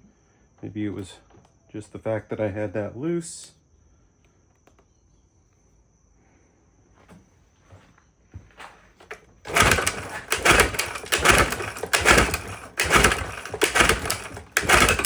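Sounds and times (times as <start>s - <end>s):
outboard motor pull-start cranking: 9.0s - 15.0s.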